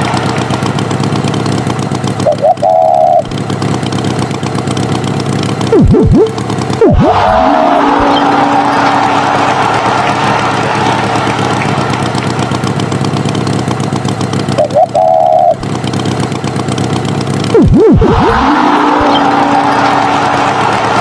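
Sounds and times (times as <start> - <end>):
animated engine sound effect: 0.0 - 21.0
swooping pitch glides: 2.2 - 3.3, 5.7 - 10.3, 14.5 - 15.6, 17.5 - 21.0
short horn-like tone: 5.7 - 9.4.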